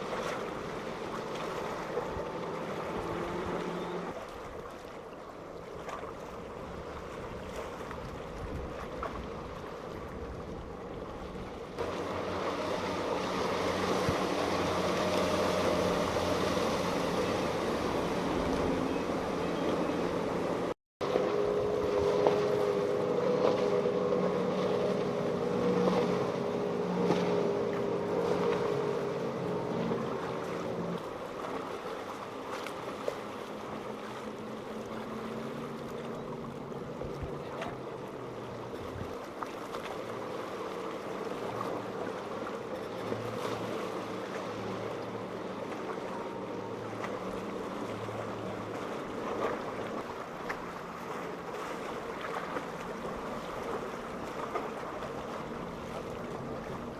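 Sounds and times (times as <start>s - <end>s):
motorboat engines droning: 0.0s - 56.9s
wash of rough water: 0.0s - 56.9s
wind noise on microphone: 6.7s - 11.5s.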